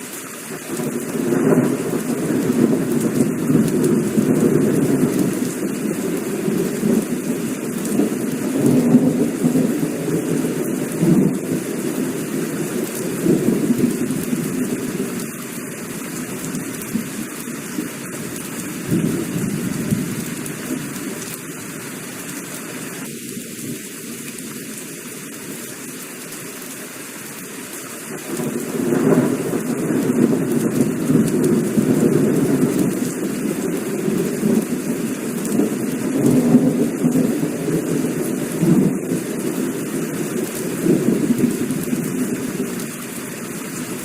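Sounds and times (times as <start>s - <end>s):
heavy rain falling: 0.0s - 44.0s
rolling thunder: 0.8s - 15.3s, 18.5s - 20.8s, 28.2s - 42.9s.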